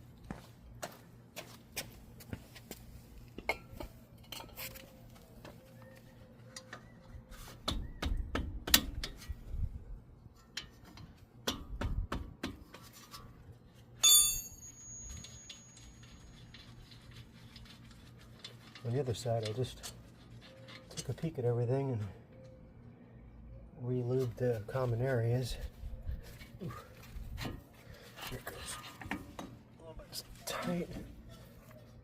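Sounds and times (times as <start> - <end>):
loud ringing metal clang: 14.0 - 16.0.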